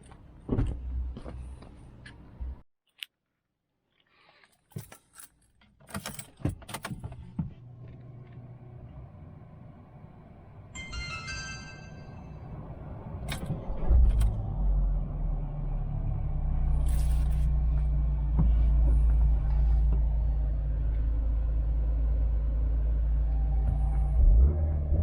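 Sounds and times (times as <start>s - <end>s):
car engine starting and idling: 5.9s - 25.0s.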